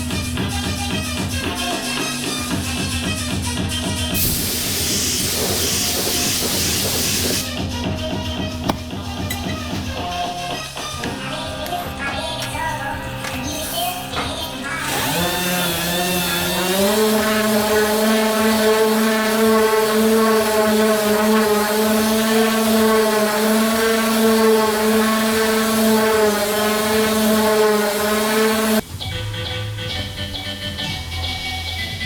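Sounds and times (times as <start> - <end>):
power tool motor whining: 4.2 - 7.5, 8.6 - 10.2, 14.6 - 28.8.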